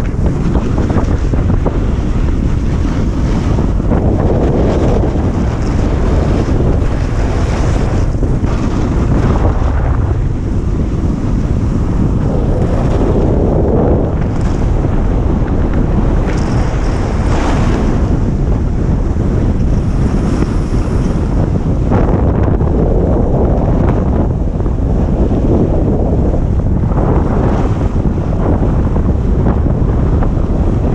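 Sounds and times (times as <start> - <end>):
snowboard sliding on snow: 0.0 - 23.9
wind buffeting microphone: 0.0 - 30.9.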